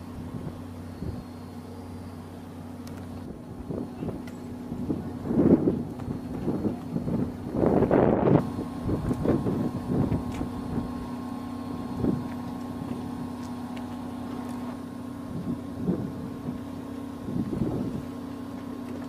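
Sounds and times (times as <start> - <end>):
vehicle humming: 0.0 - 19.0
rushing rumble: 2.8 - 18.2.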